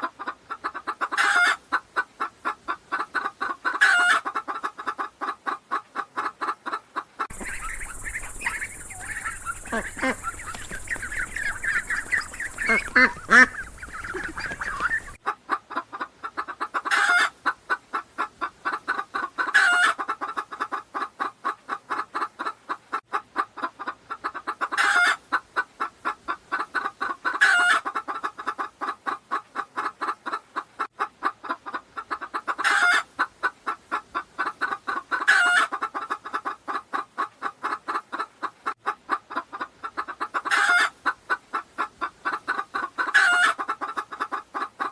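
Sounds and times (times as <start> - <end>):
fowl giving short calls: 1.0 - 1.6, 2.9 - 15.3, 16.9 - 17.3, 32.6 - 33.1, 40.4 - 41.0, 41.8 - 44.9
harsh fowl call: 7.3 - 15.2.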